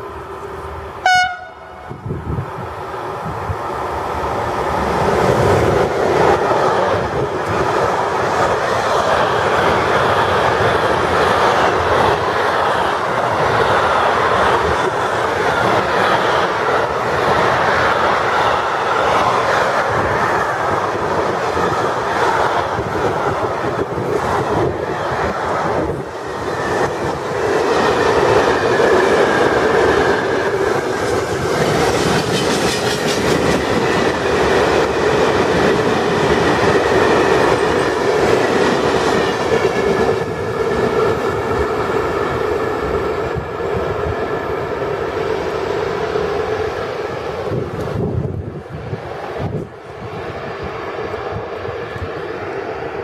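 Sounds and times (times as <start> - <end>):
freight train wagons clattering: 29.9 - 40.2.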